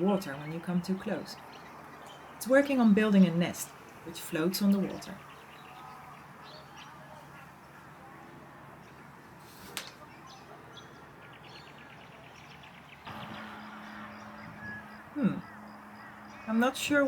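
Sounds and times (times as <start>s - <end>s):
small birds chirping: 0.0s - 17.0s
low steady hum: 10.2s - 17.0s
rapid ticking bird trill: 10.2s - 17.0s.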